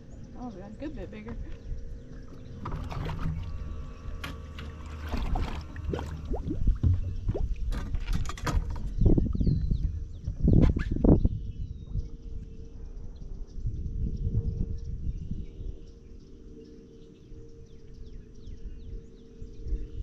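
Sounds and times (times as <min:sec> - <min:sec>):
water splashing around boat: 0:00.0 - 0:09.8
low wind rumble: 0:00.0 - 0:20.0.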